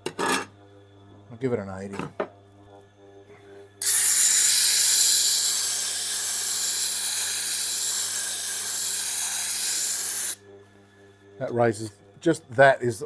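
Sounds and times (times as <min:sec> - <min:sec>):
hiss of air jet: 0:03.8 - 0:10.4.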